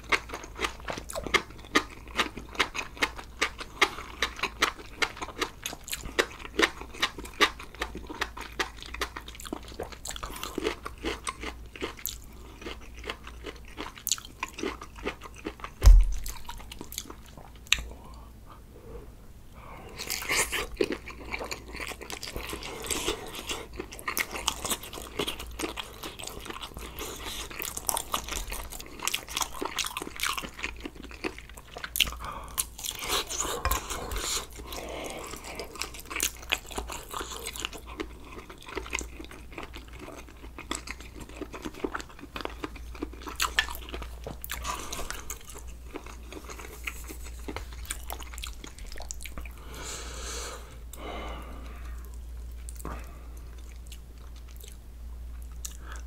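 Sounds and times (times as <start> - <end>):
man chewing with wet smacks: 0.0 - 18.2, 19.9 - 49.6, 50.8 - 56.0.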